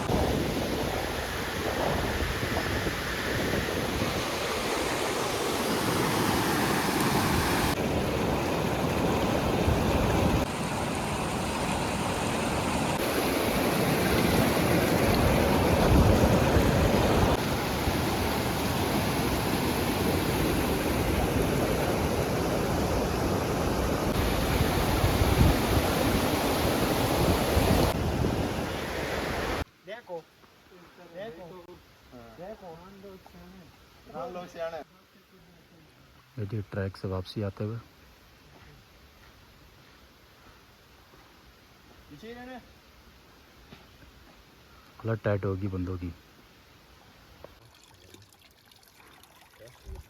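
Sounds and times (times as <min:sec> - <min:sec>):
steady rushing outdoor noise: 0:00.0 - 0:29.7.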